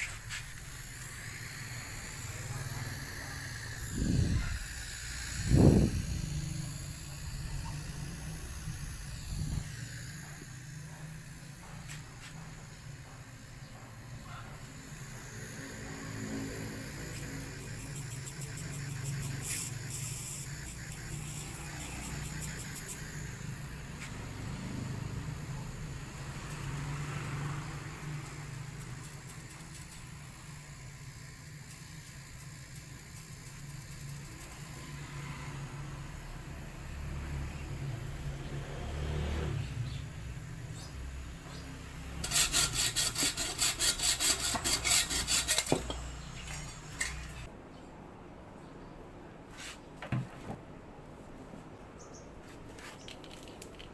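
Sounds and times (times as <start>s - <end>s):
hand tool rasping strokes: 0.0s - 26.9s, 41.4s - 47.5s
motor humming: 0.0s - 47.5s.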